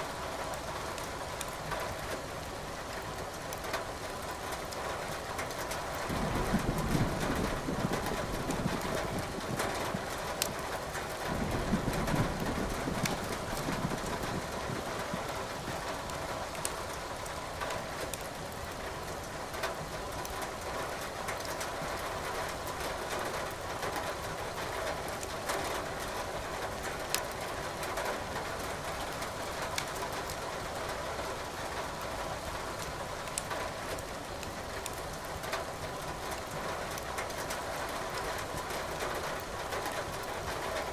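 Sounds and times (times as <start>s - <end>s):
wood fire crackling and popping: 5.4s - 18.8s, 33.2s - 33.6s
thunder rumbling: 6.0s - 10.2s, 11.2s - 15.3s.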